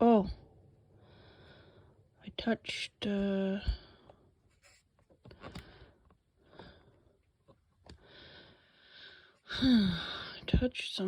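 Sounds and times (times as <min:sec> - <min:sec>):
soft breaths: 0:00.9 - 0:02.2, 0:03.6 - 0:10.6.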